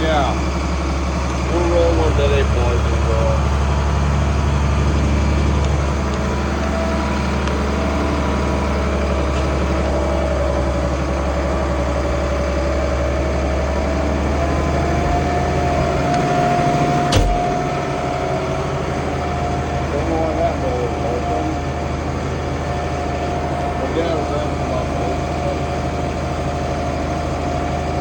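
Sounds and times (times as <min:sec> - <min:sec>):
tractor diesel engine under load: 0:00.0 - 0:28.0
sharp click: 0:17.1 - 0:17.6.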